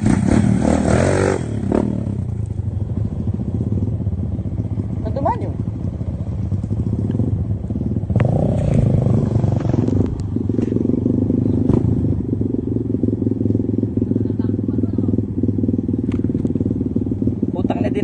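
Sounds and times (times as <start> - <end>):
dirt bike engine revving: 0.0 - 2.4, 6.8 - 18.0
bike knocking and rattling: 5.7 - 18.0.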